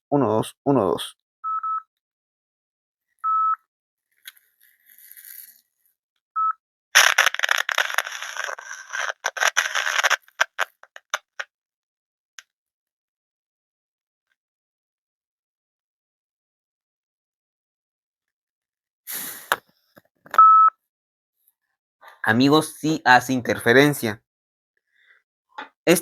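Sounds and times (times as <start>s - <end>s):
microphone interference crackling: 7.0s - 11.4s.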